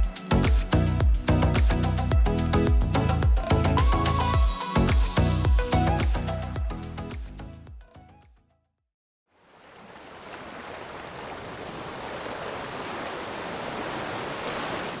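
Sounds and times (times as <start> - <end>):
music: 0.0 - 8.6.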